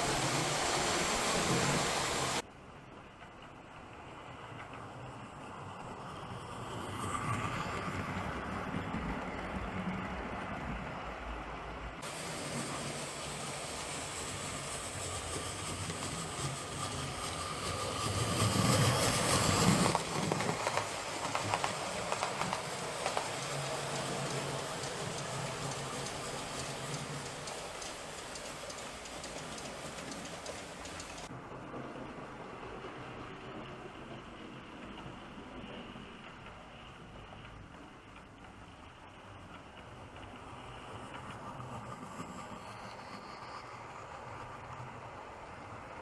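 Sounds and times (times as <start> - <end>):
model train motor hum: 12.0 - 31.3
light clicks: 19.9 - 31.3.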